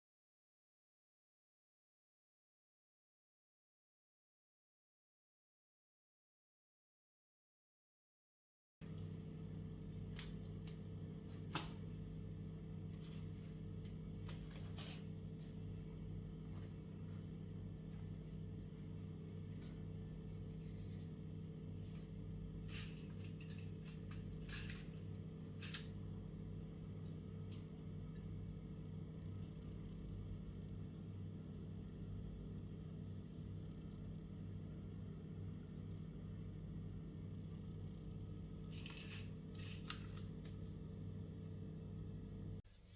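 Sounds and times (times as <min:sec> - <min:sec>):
low electrical hum: 0:08.8 - 0:42.9.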